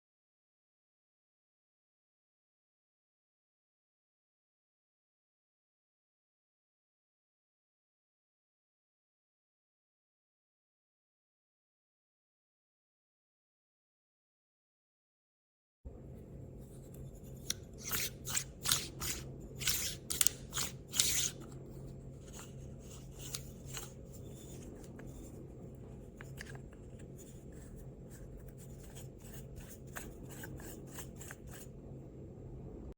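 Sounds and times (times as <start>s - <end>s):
steady low hum: 15.9s - 32.9s
coffee grinder scraping and clicking: 16.9s - 21.6s, 22.2s - 25.4s, 26.0s - 31.7s.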